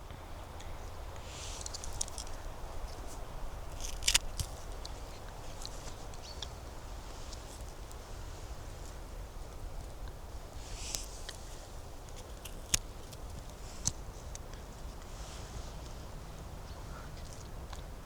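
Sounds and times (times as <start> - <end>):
twig cracking: 1.5 - 6.4, 12.0 - 14.4.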